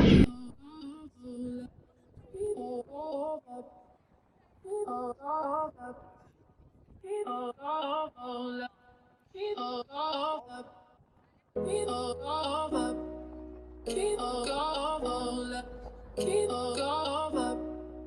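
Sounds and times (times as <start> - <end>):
person singing: 11.6 - 18.0.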